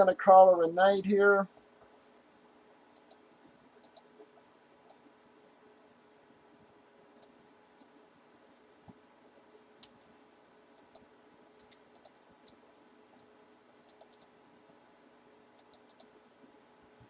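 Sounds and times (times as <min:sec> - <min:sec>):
faint steady hum: 0:00.0 - 0:17.0
keyboard and mouse clicks: 0:02.9 - 0:03.2, 0:03.8 - 0:05.0, 0:10.8 - 0:13.3, 0:13.9 - 0:14.3, 0:15.6 - 0:16.1.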